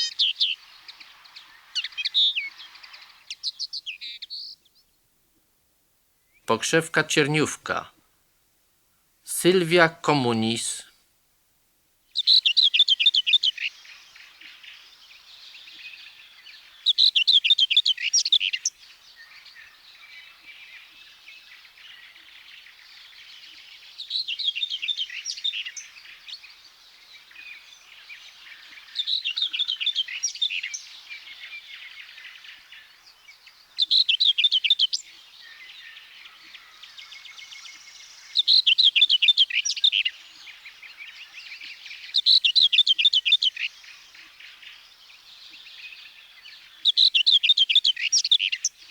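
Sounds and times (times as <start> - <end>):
faint chatter of other birds: 12.2 - 48.9.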